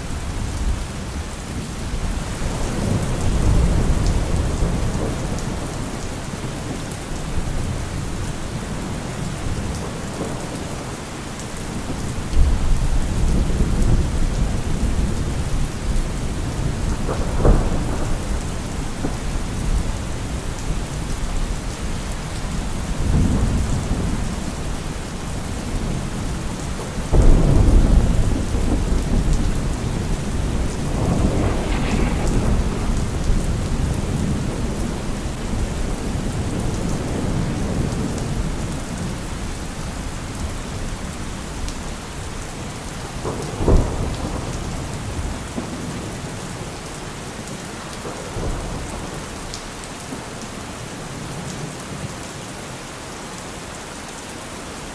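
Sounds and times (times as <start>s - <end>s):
steady rain: 0.0s - 54.9s
rolling thunder: 1.8s - 46.6s
sharp thunder crack: 27.1s - 37.9s.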